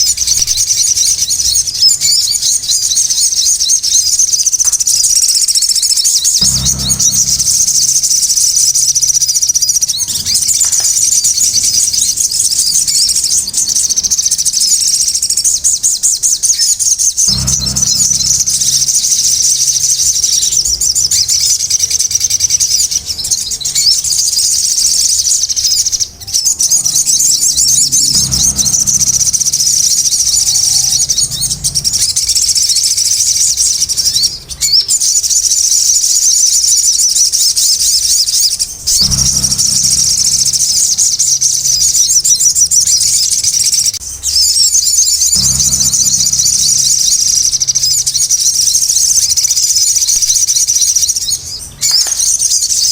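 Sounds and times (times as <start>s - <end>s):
bird chattering song: 0.0s - 52.9s
low rumble: 6.4s - 15.4s, 17.2s - 22.1s, 26.9s - 34.4s, 38.6s - 50.7s.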